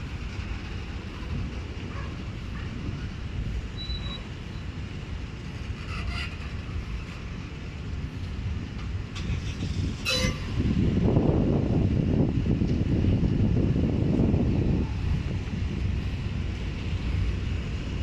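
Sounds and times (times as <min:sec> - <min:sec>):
train rumbling past: 0:00.0 - 0:18.0
metallic wheel squeals: 0:03.7 - 0:04.7, 0:05.5 - 0:07.3, 0:10.0 - 0:10.6.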